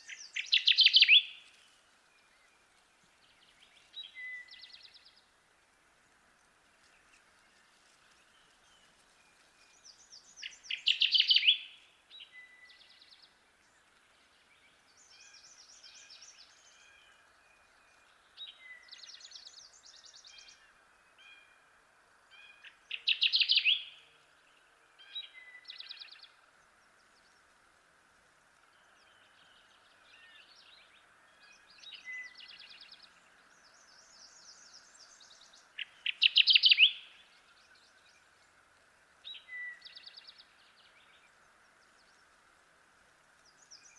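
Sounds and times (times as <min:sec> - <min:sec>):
warbler singing loud rapid song: 0:00.0 - 0:01.5, 0:09.7 - 0:13.3, 0:28.8 - 0:38.4
background hiss: 0:00.0 - 0:43.9
faint bird songs: 0:00.0 - 0:43.9.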